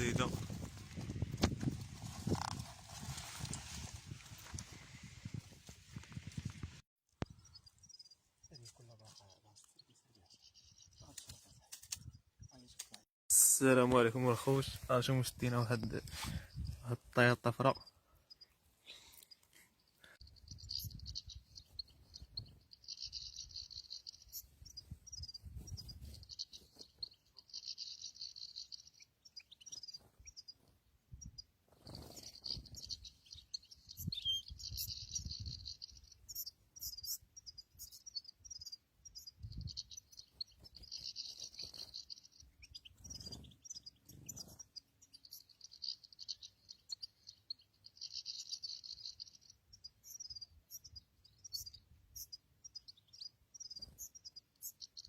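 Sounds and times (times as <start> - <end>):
songbird twittering: 20.2 - 30.6, 31.2 - 55.0.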